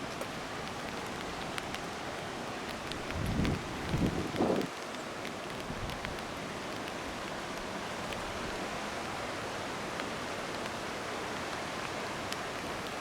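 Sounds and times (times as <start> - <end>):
raindrops ticking: 0.0 - 8.6
steady rain hissing: 0.0 - 13.0.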